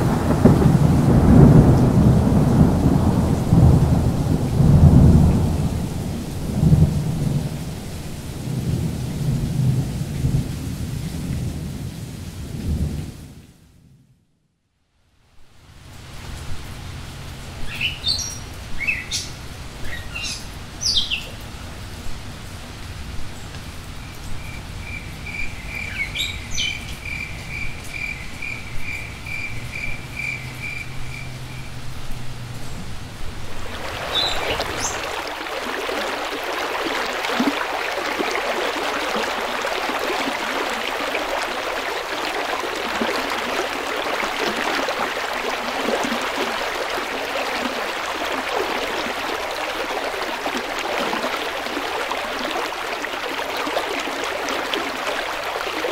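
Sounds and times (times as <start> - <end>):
rolling thunder: 0.0 - 7.8, 33.4 - 37.8
rain hissing: 0.0 - 13.4, 29.6 - 55.9
insect chirping: 24.4 - 31.8.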